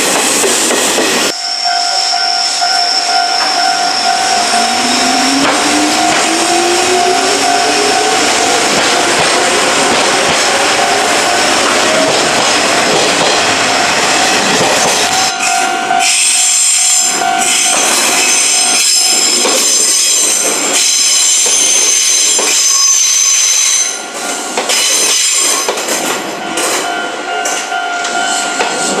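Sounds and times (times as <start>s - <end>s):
electric train passing: 0.0s - 29.0s
train wheels squealing: 1.1s - 8.6s, 13.4s - 25.8s.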